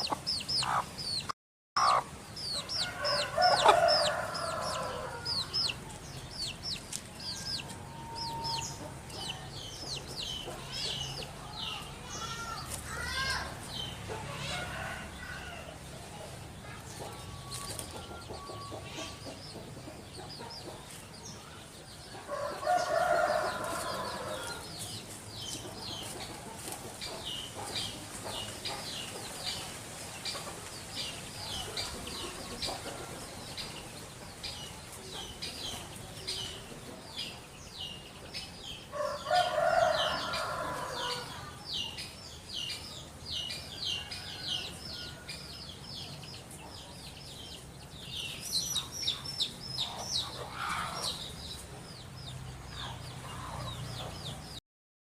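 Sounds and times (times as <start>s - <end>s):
small bird chirping: 0.0s - 12.4s
loud bird calls: 0.0s - 15.8s, 47.9s - 52.0s.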